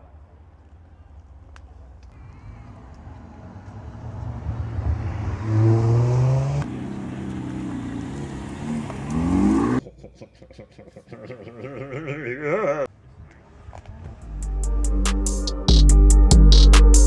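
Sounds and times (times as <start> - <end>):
car engine revving: 2.2 - 9.8.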